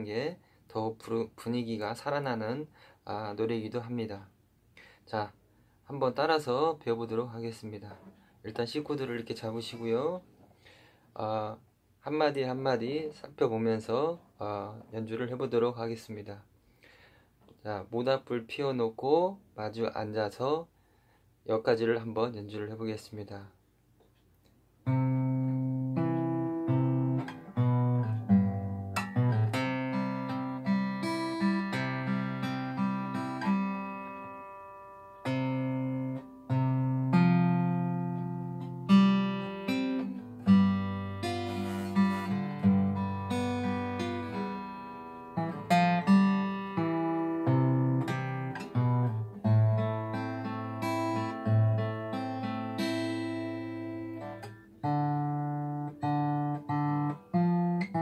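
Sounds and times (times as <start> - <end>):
acoustic guitar waltz: 24.8 - 58.0.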